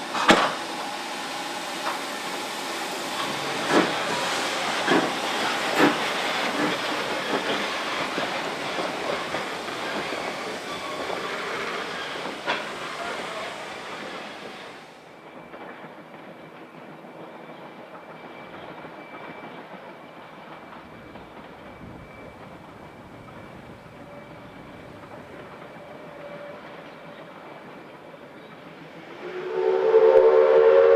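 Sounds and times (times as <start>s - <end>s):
train rushing along track: 0.0s - 30.9s.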